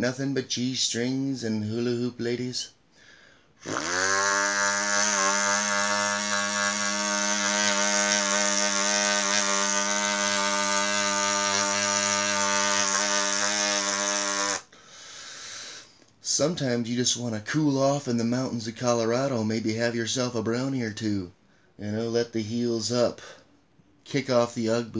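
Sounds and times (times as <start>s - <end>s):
moped engine buzzing: 3.6s - 14.6s.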